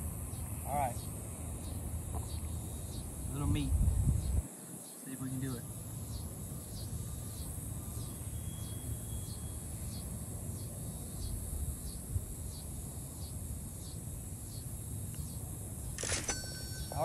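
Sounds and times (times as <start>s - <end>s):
wind rumbling on microphone: 3.1s - 4.5s, 11.2s - 12.6s.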